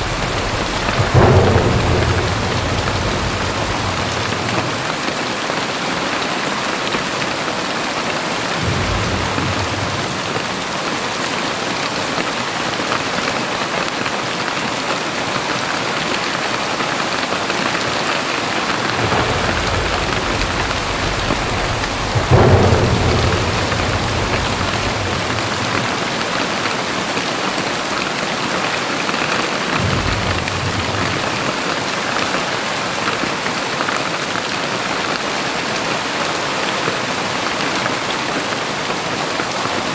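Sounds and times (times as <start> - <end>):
thunder rumbling: 0.0 - 5.5, 8.4 - 11.6, 17.4 - 27.6, 29.6 - 32.7
loud thunder clap: 0.0 - 5.8, 8.2 - 12.0, 17.1 - 27.8, 29.2 - 33.5
heavy rain pouring: 0.0 - 39.9.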